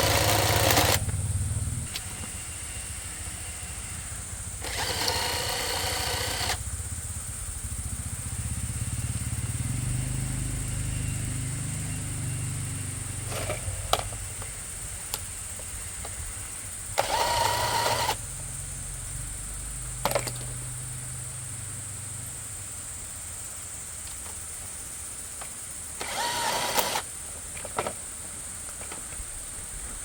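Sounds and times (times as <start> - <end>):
sharp clicks: 0.0 - 1.2, 4.6 - 6.6, 17.0 - 18.2, 26.0 - 27.0
short whining burst: 0.0 - 6.6, 26.0 - 27.0
engine rumbling: 0.0 - 24.5.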